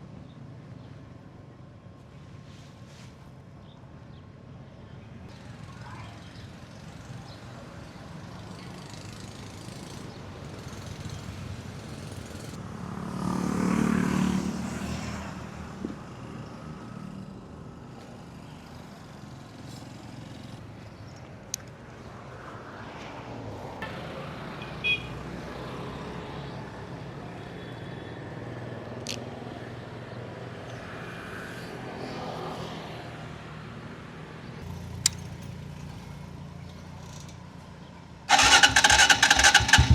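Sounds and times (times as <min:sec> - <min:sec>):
sharp clicks: 0:38.3 - 0:39.9
vehicle engine rumbling: 0:38.3 - 0:39.9.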